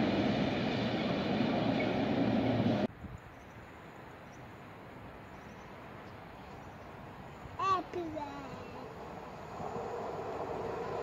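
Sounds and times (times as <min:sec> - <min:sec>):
freight train rumbling past: 0:00.0 - 0:02.9, 0:07.3 - 0:11.0.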